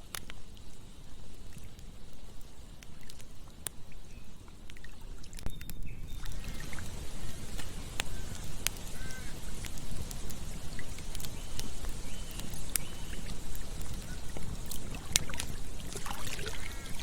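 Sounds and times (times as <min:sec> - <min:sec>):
campfire crackling and popping: 0:00.0 - 0:17.0
river water flowing: 0:06.2 - 0:17.0.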